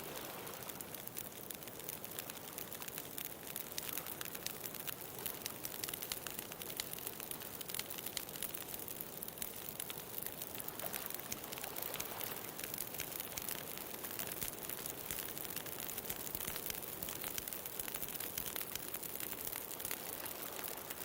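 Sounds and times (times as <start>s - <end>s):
ocean surf: 0.0s - 0.8s
bonfire crackling: 0.0s - 21.0s.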